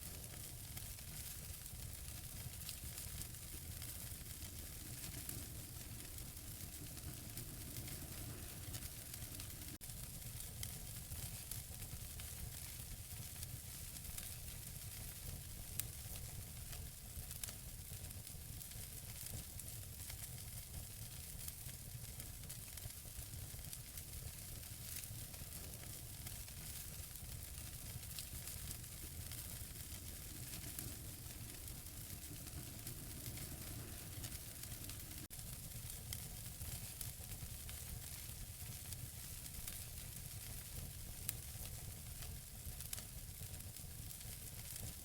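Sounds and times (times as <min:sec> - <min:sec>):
wood fire crackling and popping: 0:00.0 - 0:45.0.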